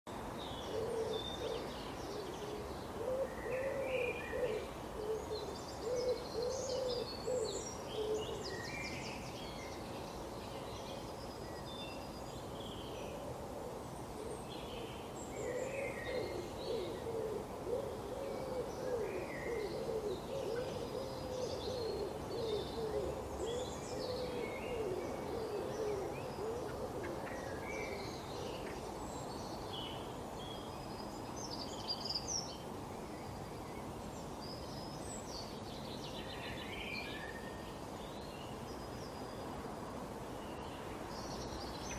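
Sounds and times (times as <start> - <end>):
low wavering hoot-like call: 15.6 - 28.0.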